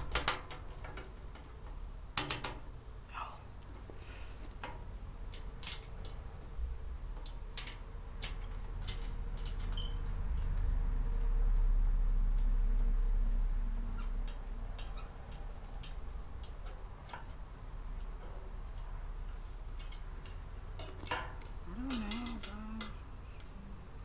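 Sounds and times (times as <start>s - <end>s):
metal parts clicking and tapping: 0.0s - 2.7s, 3.7s - 10.6s, 14.2s - 23.7s
low wavering hum: 6.5s - 24.0s.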